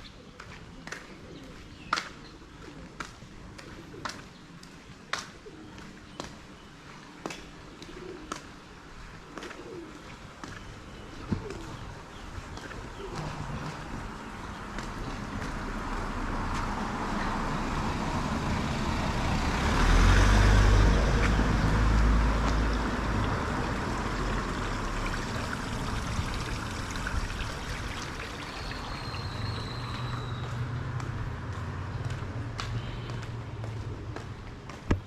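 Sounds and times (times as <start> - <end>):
traffic hum: 0.0 - 35.0
vehicle passing close: 15.6 - 34.7.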